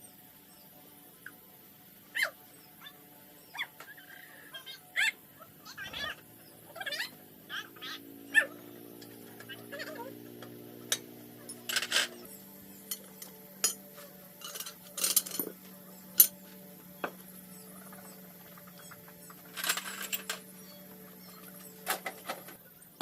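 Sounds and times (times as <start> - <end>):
faint steady hum: 0.0 - 23.0
metallic clinks and knocks: 10.2 - 16.4, 18.9 - 20.6.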